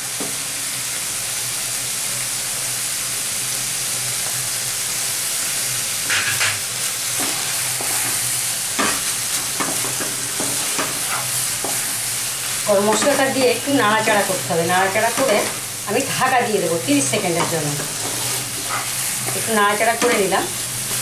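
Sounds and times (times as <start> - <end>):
curry sizzling in pan: 0.0 - 21.0
spatula scraping pan: 7.2 - 12.1, 12.7 - 15.7, 17.2 - 20.3.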